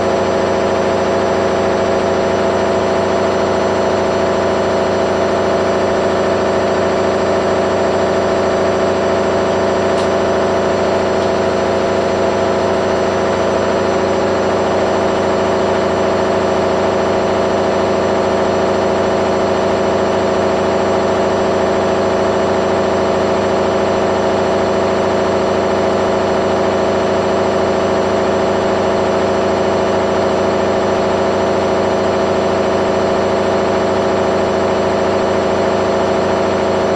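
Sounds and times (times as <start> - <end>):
washing machine spinning: 0.0 - 36.9.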